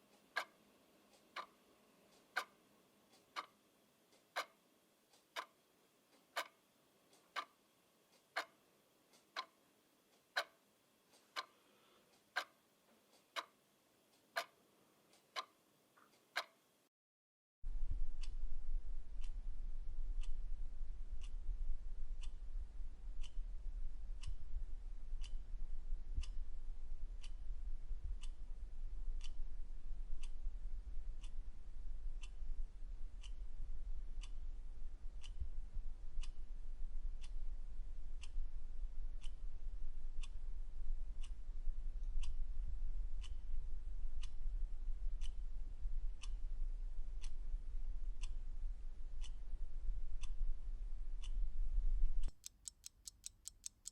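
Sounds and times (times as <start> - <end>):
clock ticking: 0.0 - 11.6, 12.2 - 14.6, 15.2 - 16.6, 52.2 - 53.9
low hum: 17.7 - 52.3.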